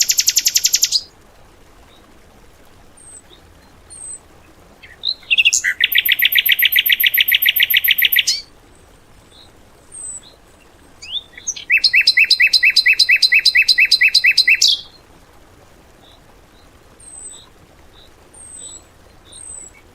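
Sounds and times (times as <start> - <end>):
short high bird chirps: 0.0 - 1.0
songbird rapid trills: 0.0 - 1.1, 3.0 - 8.5, 9.2 - 15.0.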